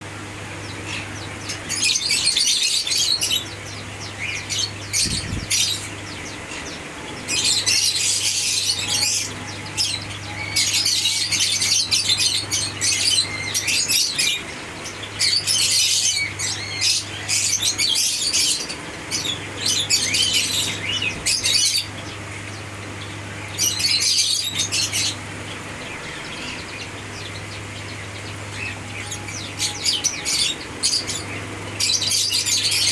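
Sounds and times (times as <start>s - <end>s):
lovebirds chirping and squawking: 0.0s - 32.9s
steady low hum: 0.0s - 32.9s.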